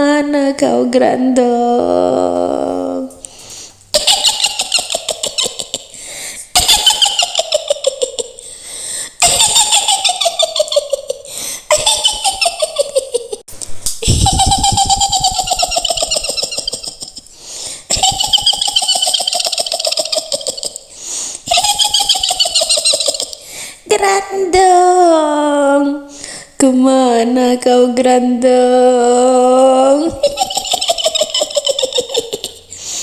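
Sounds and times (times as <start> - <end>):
woman cackling laugh: 3.9 - 8.4, 9.2 - 13.4, 14.0 - 17.3, 17.9 - 23.5, 30.0 - 32.7.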